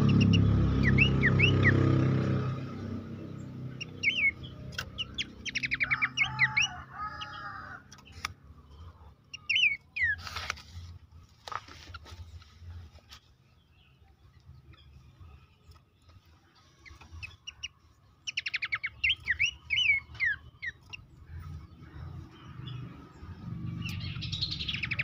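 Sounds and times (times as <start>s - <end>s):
bird whistled notes: 0.0s - 1.8s.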